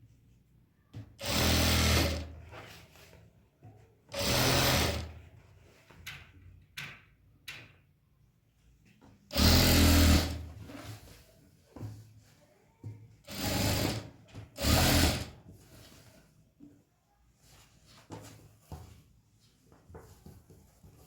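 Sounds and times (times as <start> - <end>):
sewing machine stitching: 1.2 - 2.4, 4.1 - 5.2, 9.3 - 10.5, 13.2 - 15.4.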